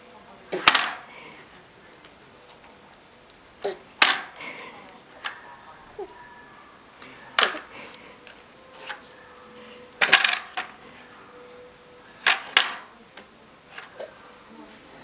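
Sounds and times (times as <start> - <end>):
hard objects knocking and clattering: 0.6 - 1.1, 4.0 - 5.5, 7.3 - 9.0, 10.0 - 10.8, 12.2 - 14.0.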